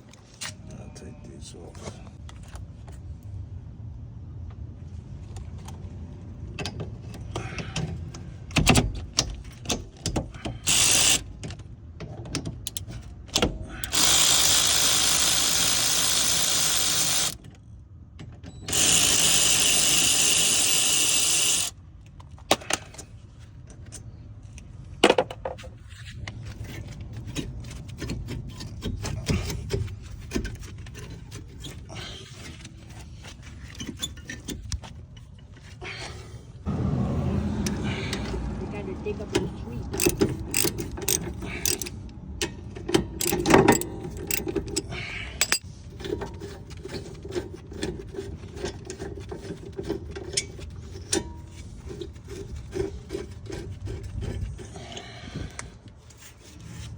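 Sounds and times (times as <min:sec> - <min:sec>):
clanks and clicks of tools: 0:06.6 - 0:17.6, 0:39.3 - 0:55.7
power tool running: 0:10.7 - 0:11.2, 0:13.9 - 0:17.4, 0:18.7 - 0:21.7.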